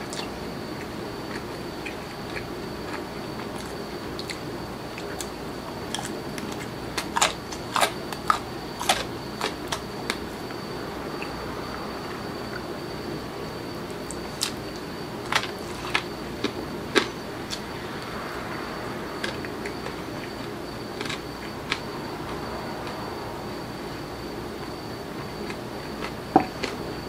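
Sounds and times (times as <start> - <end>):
faint room hum: 0.0 - 27.0.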